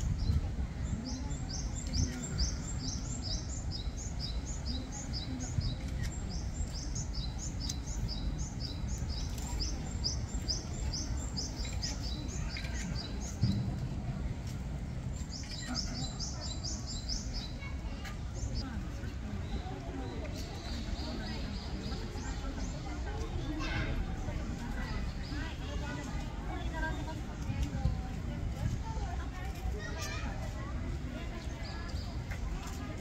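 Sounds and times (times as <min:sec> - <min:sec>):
low outdoor rumble: 0:00.0 - 0:19.8.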